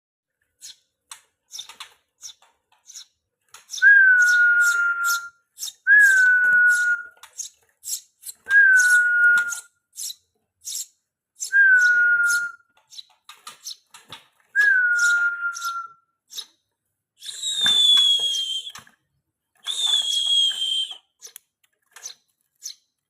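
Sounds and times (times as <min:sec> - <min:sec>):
nestlings begging chirps: 0:01.5 - 0:09.0, 0:09.9 - 0:13.8, 0:15.0 - 0:16.5.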